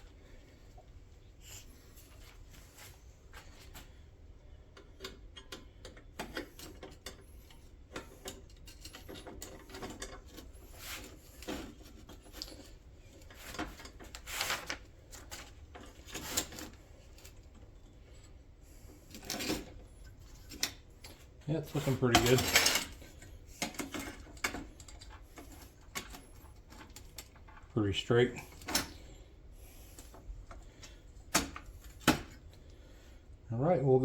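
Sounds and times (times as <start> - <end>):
parts scraping: 21.6 - 32.4.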